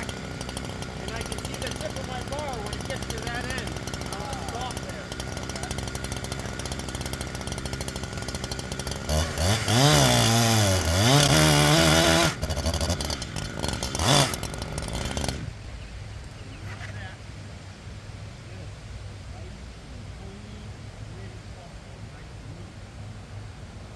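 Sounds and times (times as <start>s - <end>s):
chainsaw running and revving: 0.0s - 15.6s.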